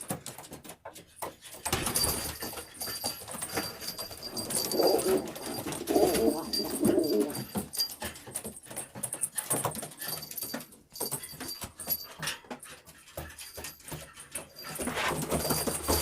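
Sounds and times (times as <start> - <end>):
small clicks and rustles: 0.0 - 16.0
pigeons cooing: 4.4 - 7.5.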